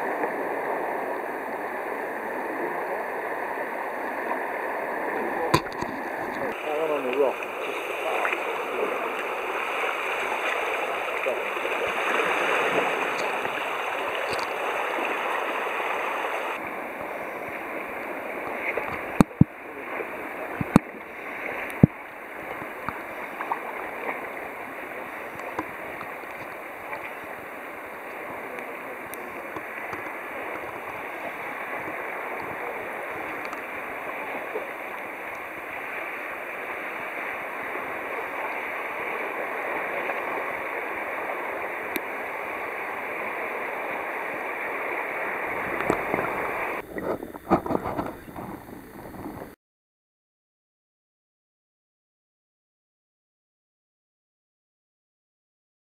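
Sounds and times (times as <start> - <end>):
water rushing and lapping: 0.0 - 49.6.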